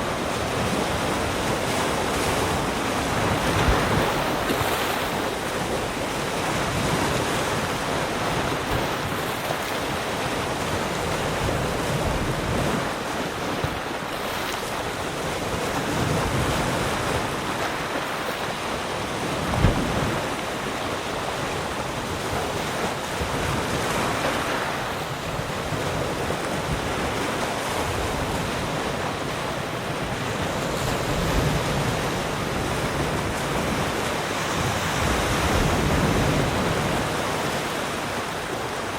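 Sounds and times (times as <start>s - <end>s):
ocean waves breaking: 0.0s - 38.9s
brief thump: 19.6s - 19.9s.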